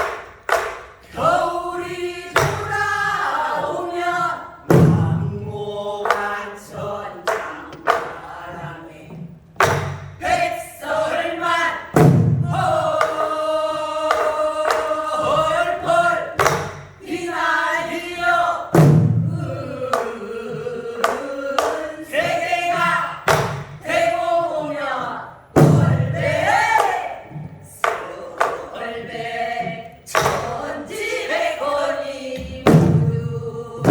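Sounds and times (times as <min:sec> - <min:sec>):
group singing: 0:00.0 - 0:33.9
deep drum strokes: 0:01.8 - 0:17.2, 0:18.8 - 0:20.8
sticks clicking on drums: 0:06.0 - 0:10.4, 0:12.9 - 0:15.4.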